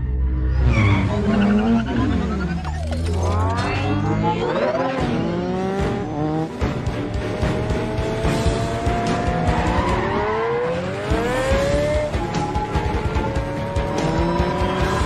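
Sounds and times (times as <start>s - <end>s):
action film score music: 0.0s - 15.0s
sports car engine revving: 4.1s - 15.0s.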